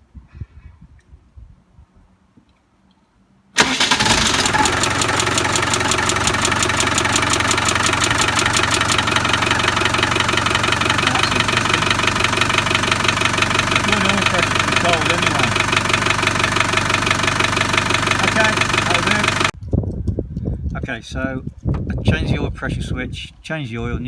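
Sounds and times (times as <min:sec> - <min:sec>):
diesel engine starting and idling: 0:03.6 - 0:19.6.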